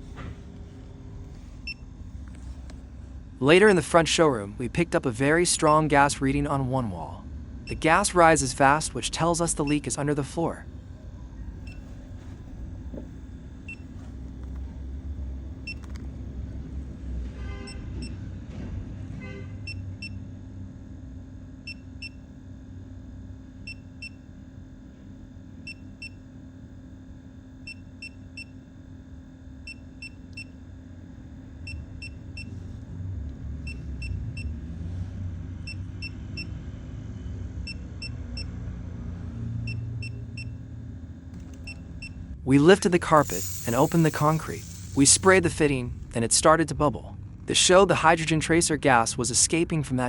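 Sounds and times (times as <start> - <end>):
steady low rumble: 0.0 - 17.1, 40.0 - 48.7
leak detector beeping: 5.5 - 6.0, 7.6 - 8.1, 9.6 - 10.0, 11.6 - 12.3, 13.6 - 14.6, 15.6 - 16.0, 29.6 - 30.6, 31.6 - 32.6, 33.6 - 34.5, 39.6 - 40.6, 41.4 - 42.2, 42.9 - 45.8.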